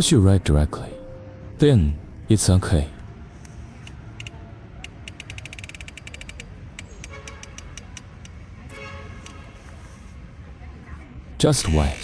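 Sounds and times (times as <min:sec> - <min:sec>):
low steady hum: 0:00.4 - 0:03.9
sharp clicks: 0:03.4 - 0:08.4.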